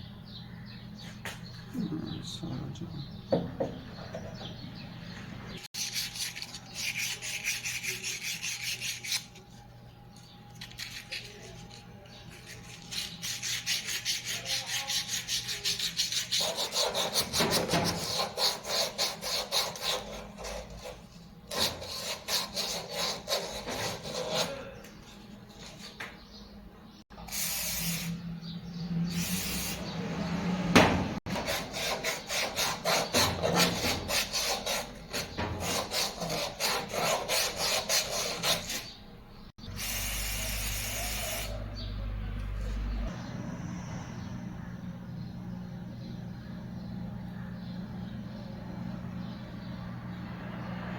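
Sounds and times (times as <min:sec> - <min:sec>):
hand file rasping: 0:05.8 - 0:09.4, 0:10.6 - 0:24.8, 0:31.3 - 0:39.0, 0:39.7 - 0:41.6.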